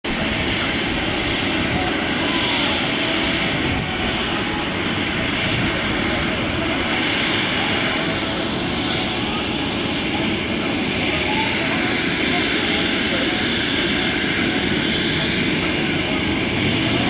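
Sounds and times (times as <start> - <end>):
helicopter engine and rotor: 0.0 - 17.0.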